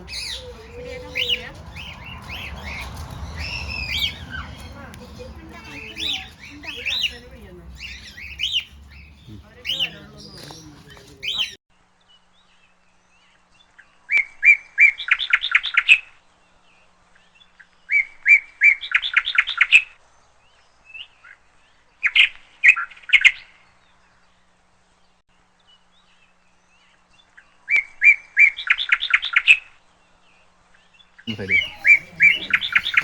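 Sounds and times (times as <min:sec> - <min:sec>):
parrot chirping: 0:00.0 - 0:11.6, 0:31.3 - 0:33.0.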